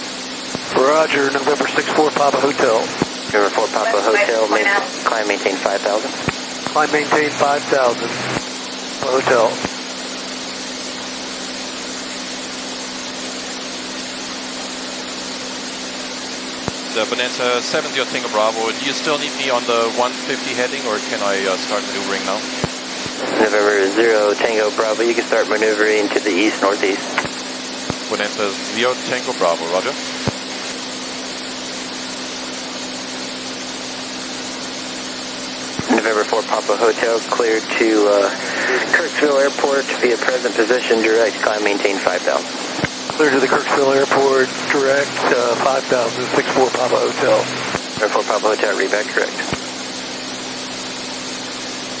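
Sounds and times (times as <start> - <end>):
propeller plane engine droning: 0.0 - 52.0
radio click: 0.5 - 9.8, 16.6 - 16.8, 19.2 - 24.0, 26.1 - 28.1, 29.8 - 30.8, 35.7 - 52.0.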